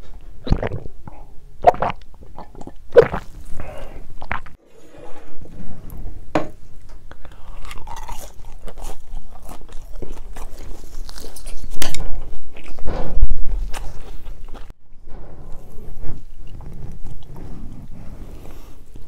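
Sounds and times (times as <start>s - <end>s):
person chewing crunchy food: 1.6s - 4.6s, 7.1s - 12.9s.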